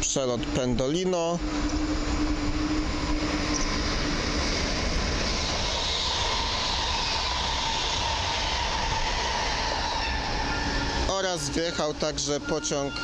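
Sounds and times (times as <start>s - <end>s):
train rushing past: 0.0s - 13.0s
faint high whine: 0.5s - 4.2s, 10.4s - 13.0s.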